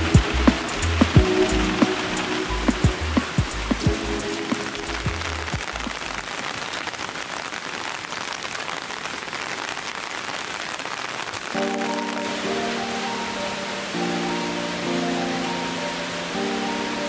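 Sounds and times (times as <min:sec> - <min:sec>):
background music with low bass: 0:00.0 - 0:06.0
rain falling and pattering: 0:00.0 - 0:17.0.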